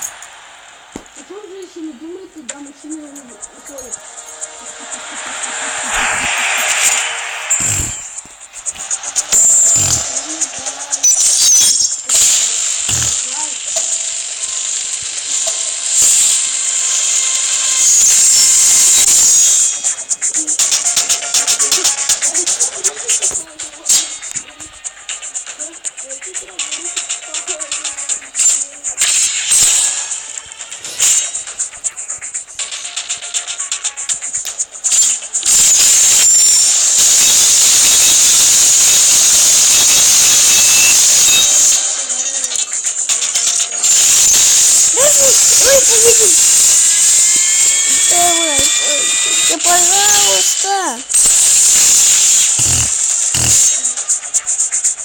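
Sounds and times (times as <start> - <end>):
loud hissing whoosh: 0.0 - 23.3, 35.5 - 43.2
fast pulsing rhythm: 0.0 - 55.0
spinning tops whirring: 0.0 - 55.0
game music: 2.9 - 11.2.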